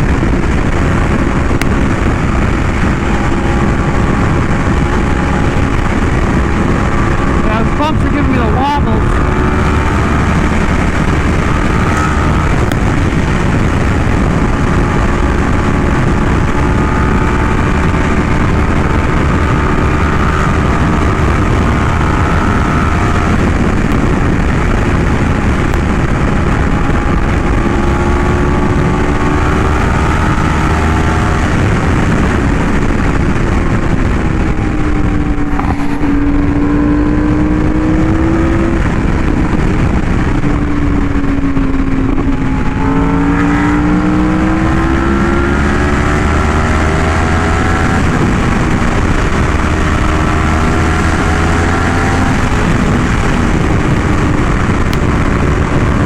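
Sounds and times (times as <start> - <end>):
motorcycle engine cruising: 0.0 - 56.0
wind noise rushing: 0.0 - 56.0.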